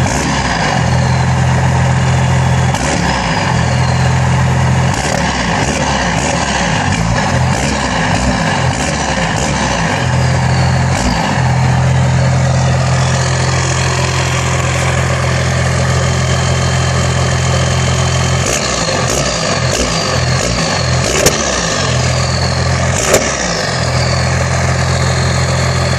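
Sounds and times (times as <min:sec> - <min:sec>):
diesel engine idling and revving: 0:00.0 - 0:25.9
turbo whistle: 0:00.7 - 0:04.4, 0:10.0 - 0:25.9.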